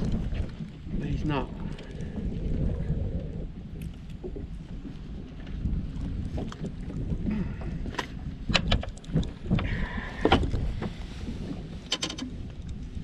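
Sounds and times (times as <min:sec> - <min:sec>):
wind buffeting microphone: 0:00.0 - 0:13.0
sharp clicks and knocks: 0:08.0 - 0:09.7, 0:11.9 - 0:12.4.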